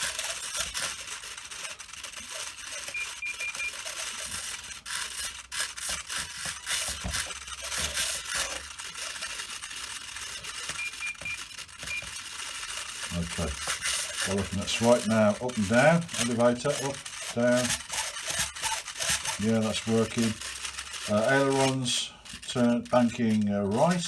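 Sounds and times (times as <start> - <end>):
servos rattling and clicking: 0.0 - 24.0
short transmitter beeps: 2.8 - 4.3, 10.6 - 12.2.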